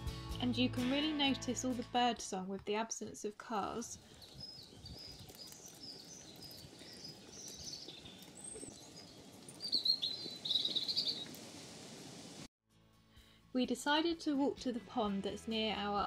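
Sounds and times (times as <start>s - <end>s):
faint outdoor hiss: 3.0s - 12.5s
birds chirping and trilling: 3.9s - 11.5s.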